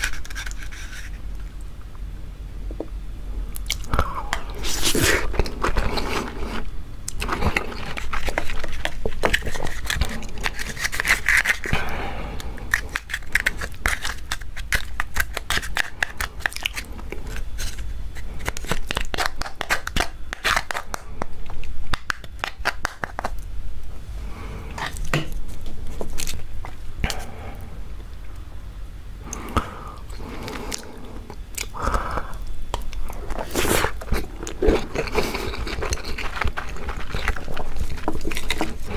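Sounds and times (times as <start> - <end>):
crab shell cracking while eating: 3.6 - 23.4, 29.3 - 38.9.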